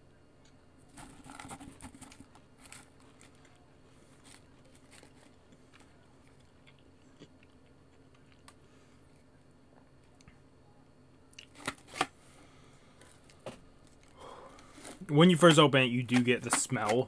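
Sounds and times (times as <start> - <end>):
crisps being chewed: 4.1 - 8.6, 11.3 - 12.0.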